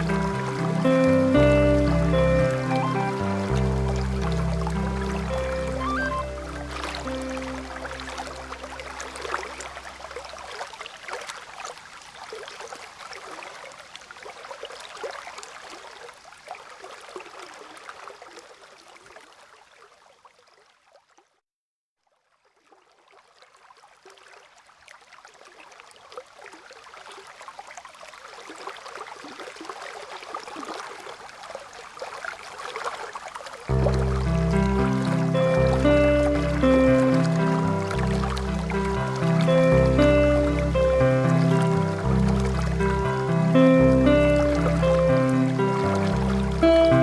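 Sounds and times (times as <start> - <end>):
low piano-like music: 0.0 - 10.2, 33.7 - 47.0.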